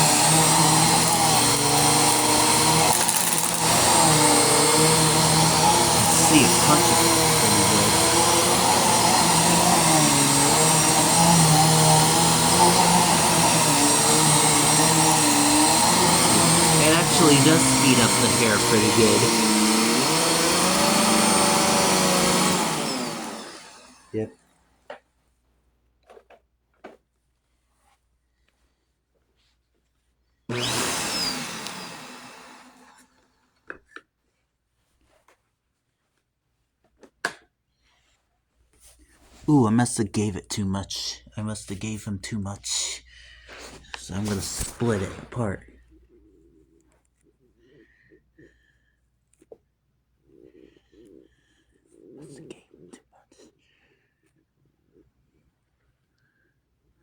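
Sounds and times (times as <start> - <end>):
upright vacuum running: 0.0 - 24.2, 30.5 - 33.0, 43.4 - 45.7.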